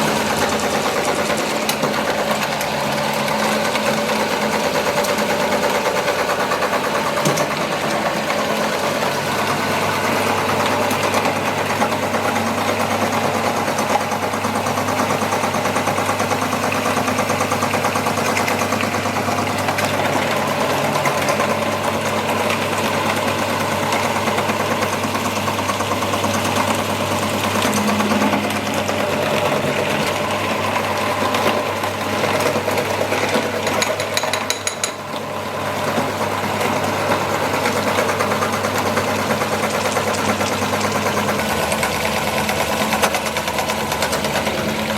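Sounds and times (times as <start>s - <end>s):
electric meat grinder humming: 0.0s - 44.9s.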